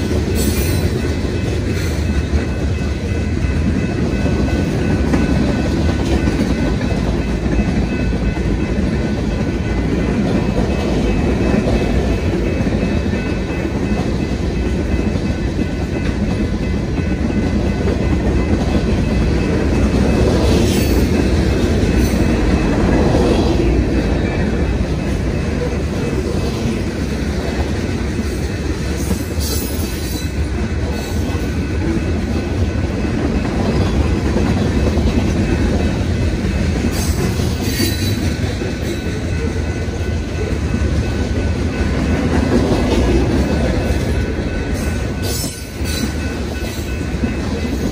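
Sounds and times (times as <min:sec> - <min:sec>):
train wheels rumbling on track: 0:00.0 - 0:47.9.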